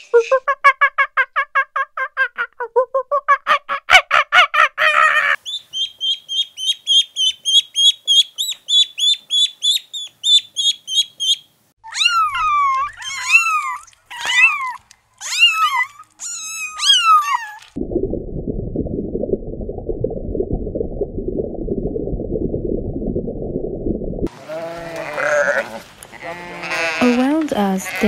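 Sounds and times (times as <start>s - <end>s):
ducklings peeping: 5.4s - 14.8s
kittens meowing: 11.9s - 17.7s, 24.5s - 27.1s.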